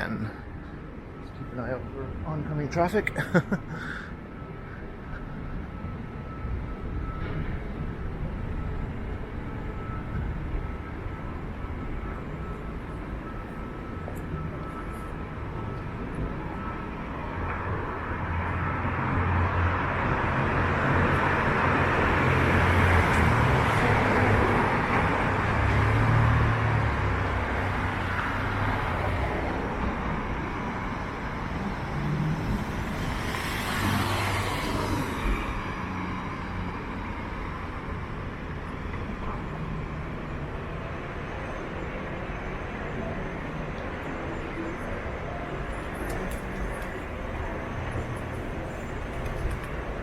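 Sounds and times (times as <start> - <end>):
street noise: 0.0 - 50.0
vehicle engine hum passing: 14.8 - 50.0.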